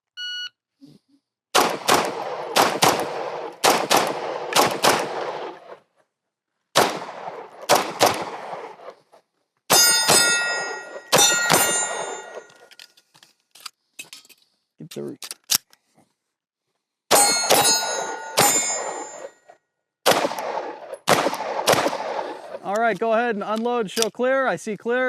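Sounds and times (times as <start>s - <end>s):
pistol shots: 1.5s - 5.8s, 6.7s - 8.9s, 9.7s - 12.5s, 17.1s - 19.3s, 20.0s - 22.6s
steel targets ringing: 9.7s - 12.7s, 17.1s - 19.3s.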